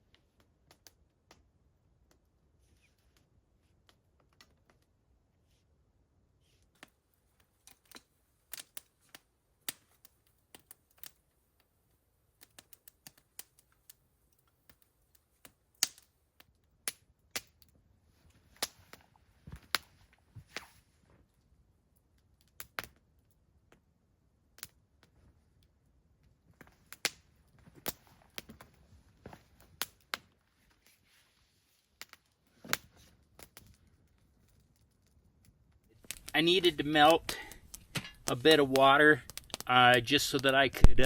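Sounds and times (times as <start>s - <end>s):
campfire crackling and popping: 0.0s - 31.2s, 31.8s - 41.0s.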